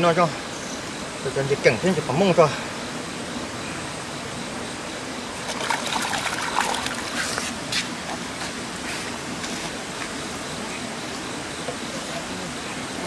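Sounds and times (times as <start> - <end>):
river water rushing: 4.4 - 10.6
water splashing and trickling: 5.3 - 7.7.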